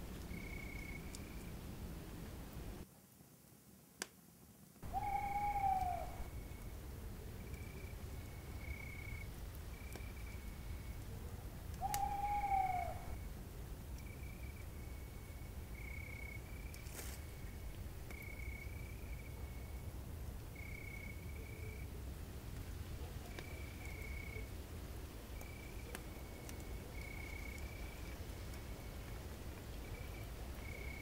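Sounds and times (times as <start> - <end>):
insect chirping: 0.1 - 1.7, 4.9 - 11.1, 11.8 - 21.9, 22.8 - 31.0
rising and falling call: 4.8 - 6.3.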